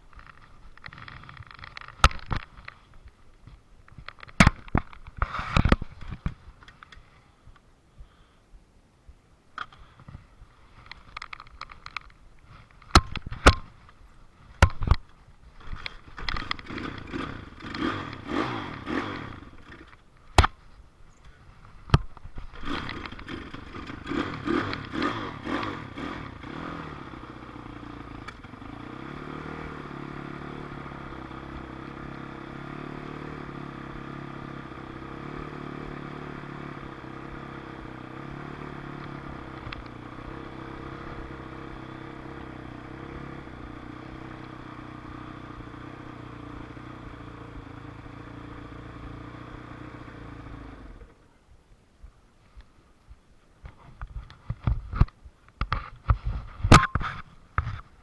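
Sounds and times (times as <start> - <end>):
dirt bike engine revving: 15.7 - 19.9, 22.5 - 51.1.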